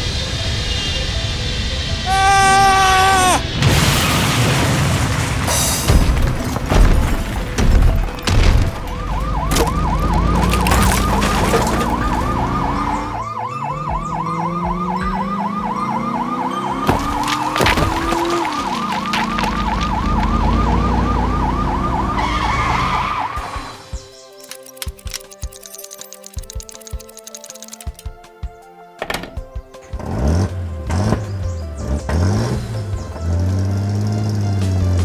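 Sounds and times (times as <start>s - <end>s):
toy siren yelping: 12.4s - 16.9s.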